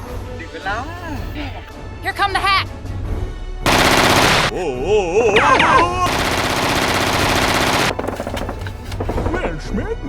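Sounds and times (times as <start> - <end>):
machine-gun fire: 3.7 - 4.6, 6.1 - 8.6.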